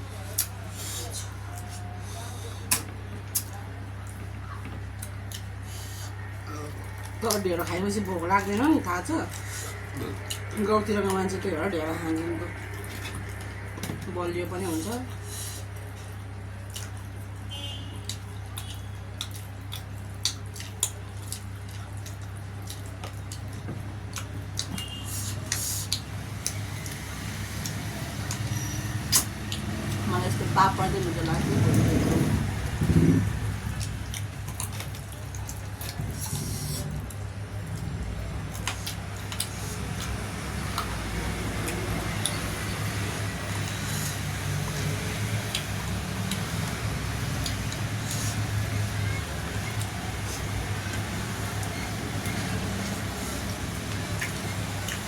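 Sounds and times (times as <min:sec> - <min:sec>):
steady low motor hum: 0:00.0 - 0:55.0
person chewing and smacking: 0:00.2 - 0:02.0, 0:02.6 - 0:08.7, 0:09.3 - 0:14.0, 0:15.7 - 0:30.1, 0:32.5 - 0:55.0.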